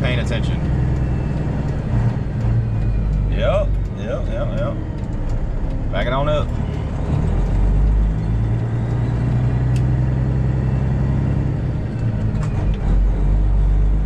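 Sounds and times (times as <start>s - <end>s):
truck engine droning: 0.0s - 14.0s
click in truck cab: 8.6s - 9.9s.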